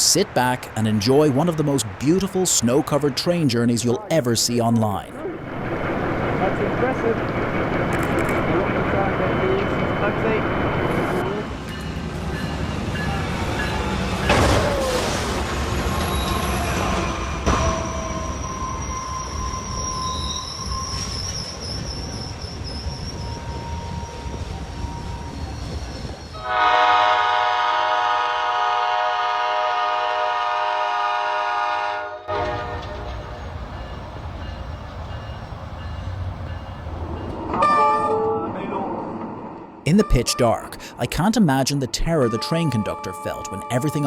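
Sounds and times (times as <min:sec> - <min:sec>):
train running on track: 0:00.0 - 0:44.0
wheels squealing: 0:13.6 - 0:26.4
train horn blast: 0:26.4 - 0:33.3.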